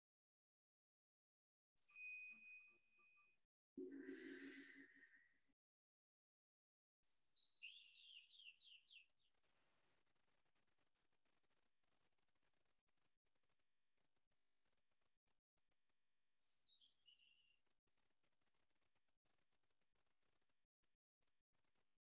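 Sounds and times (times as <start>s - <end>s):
faint bird song: 7.0s - 9.6s, 16.4s - 17.6s.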